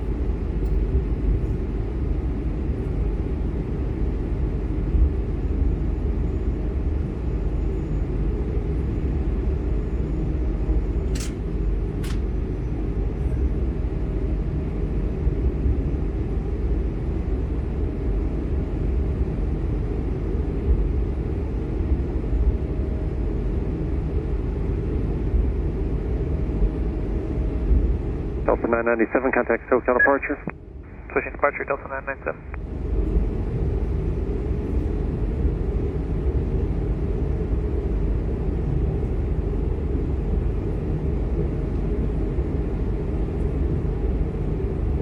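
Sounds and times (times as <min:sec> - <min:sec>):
airplane cabin engine rumble: 0:00.0 - 0:45.0
short clicks: 0:11.2 - 0:12.3.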